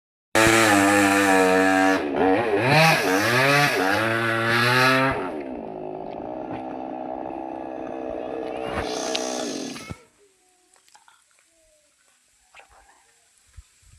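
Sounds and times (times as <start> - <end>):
chainsaw revving: 0.4 - 9.9.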